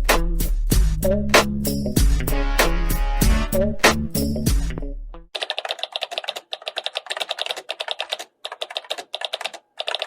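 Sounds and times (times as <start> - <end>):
rapid keyboard typing: 5.3 - 10.0.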